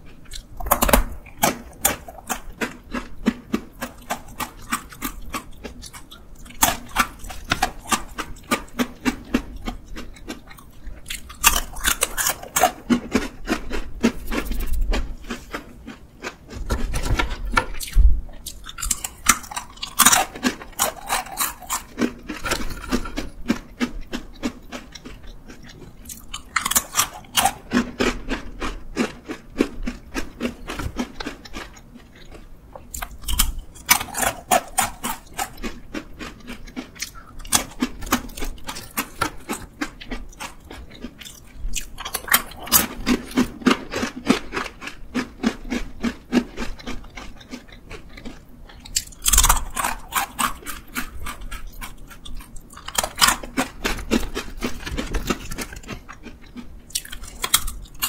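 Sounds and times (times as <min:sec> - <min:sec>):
crunching and chewing snack: 0:00.0 - 0:58.0.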